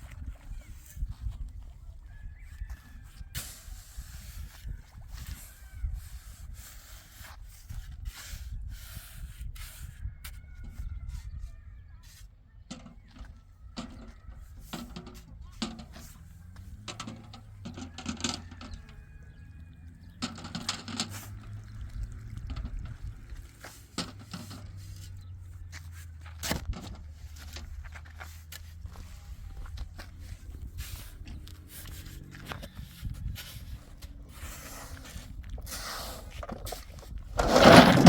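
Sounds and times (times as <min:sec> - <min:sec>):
knocks clicks and scrapes: 0:12.6 - 0:19.1, 0:19.9 - 0:29.1, 0:30.0 - 0:38.0.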